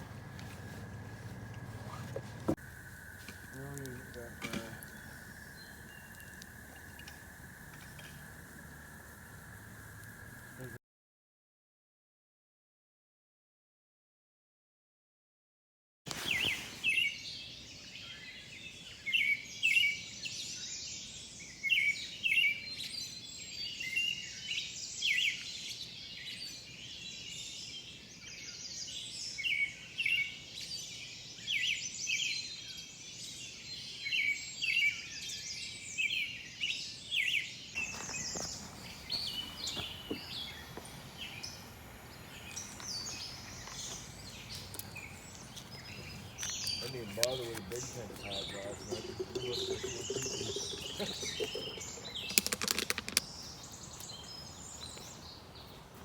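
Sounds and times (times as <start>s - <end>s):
songbirds singing: 0.0s - 10.8s, 16.1s - 56.0s
steady rushing hiss: 0.0s - 10.8s, 37.8s - 56.0s.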